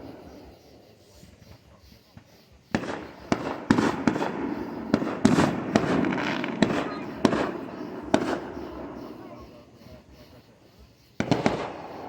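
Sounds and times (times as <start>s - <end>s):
fireworks bangs with echo: 2.7s - 10.5s, 11.1s - 12.0s.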